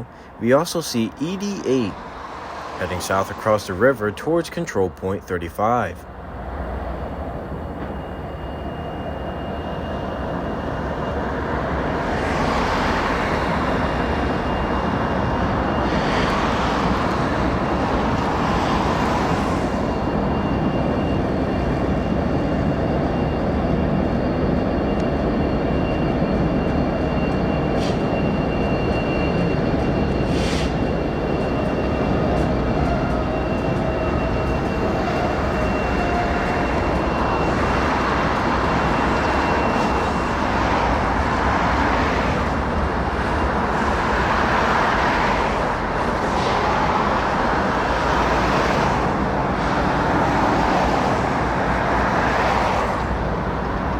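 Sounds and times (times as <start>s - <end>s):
traffic passing hiss: 0.0s - 5.8s
distant freight train running: 0.0s - 53.9s.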